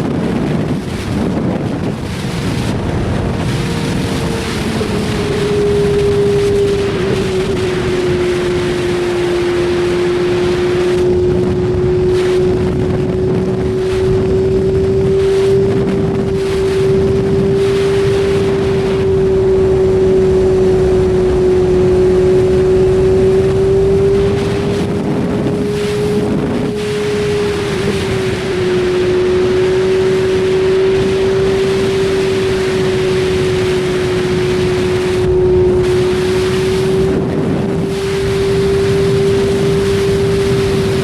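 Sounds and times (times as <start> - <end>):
motorcycle engine high-pitched: 0.0 - 41.0
wind rush on microphone: 0.0 - 41.0.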